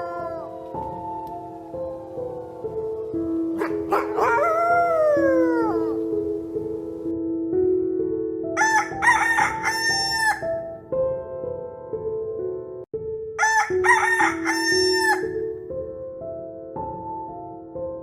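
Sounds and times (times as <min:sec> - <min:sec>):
bird crowing: 0:00.0 - 0:01.0, 0:01.7 - 0:06.2, 0:08.6 - 0:10.6, 0:13.4 - 0:15.4.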